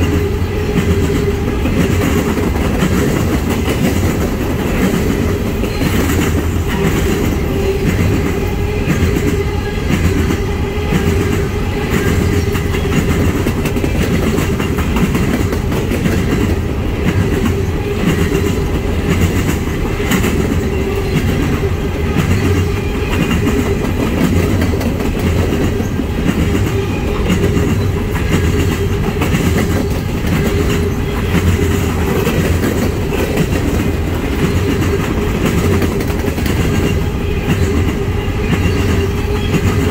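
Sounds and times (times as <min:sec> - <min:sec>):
steel wheels rumbling on rail: 0:00.0 - 0:39.9
wheels clacking over rail joints: 0:00.0 - 0:39.9.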